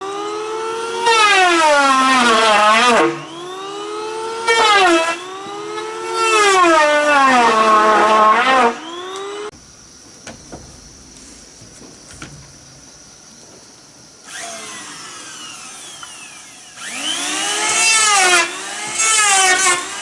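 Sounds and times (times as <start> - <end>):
chainsaw cutting wood: 0.0 - 9.5, 14.2 - 20.0.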